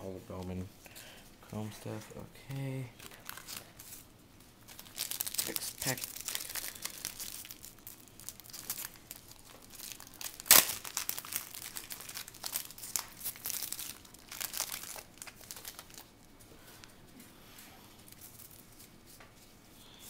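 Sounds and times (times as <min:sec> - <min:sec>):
plastic wrapper crinkling: 0:01.4 - 0:04.0, 0:04.6 - 0:16.9, 0:18.0 - 0:19.2
wrapper tearing: 0:02.5 - 0:04.0, 0:04.7 - 0:16.2.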